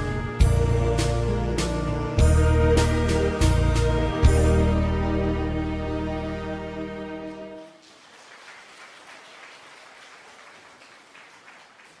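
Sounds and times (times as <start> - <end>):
saxophone ensemble chord: 0.0 - 7.8
light applause: 7.6 - 12.0.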